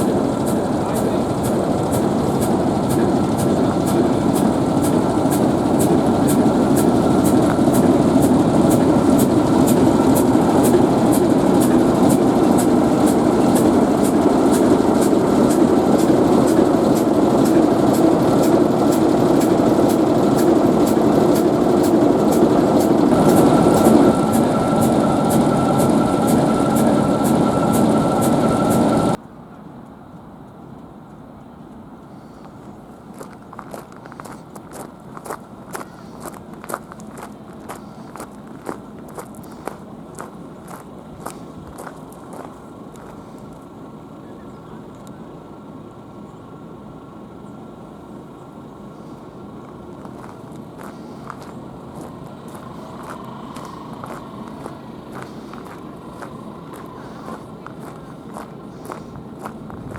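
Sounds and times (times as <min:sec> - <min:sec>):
diesel locomotive idling: 0:00.0 - 0:29.2, 0:31.9 - 0:59.9
high ticking: 0:00.0 - 0:29.2.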